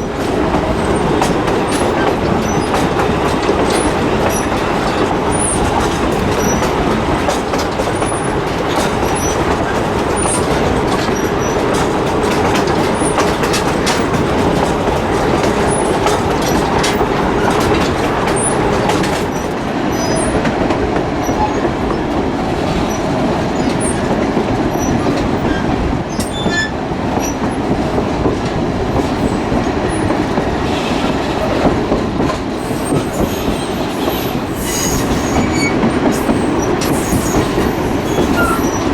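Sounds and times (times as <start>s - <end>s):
train rolling: 0.0s - 38.9s
wheels clicking over rail joints: 0.0s - 38.9s
high wheel squeals: 32.6s - 38.9s.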